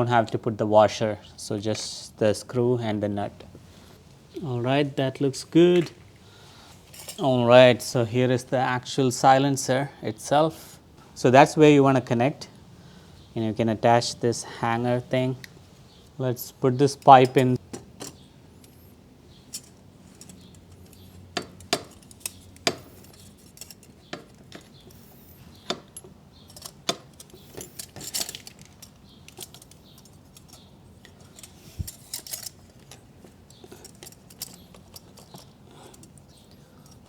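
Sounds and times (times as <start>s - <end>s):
metal exhaust parts clinking: 6.8s - 7.4s, 16.4s - 37.0s.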